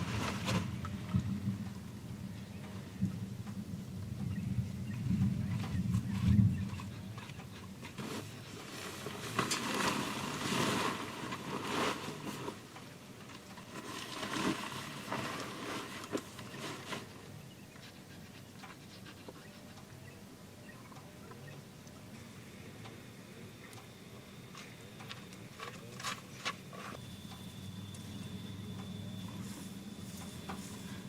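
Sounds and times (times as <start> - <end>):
fabric rustling and scraping: 0.0 - 0.9, 7.8 - 17.2
faint steady hiss: 0.0 - 31.0.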